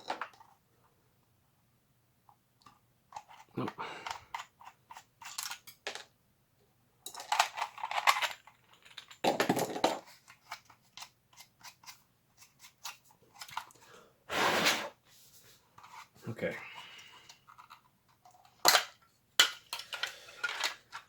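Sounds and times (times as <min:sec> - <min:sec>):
plastic parts clicking and tapping: 0:07.0 - 0:12.0, 0:17.0 - 0:21.0.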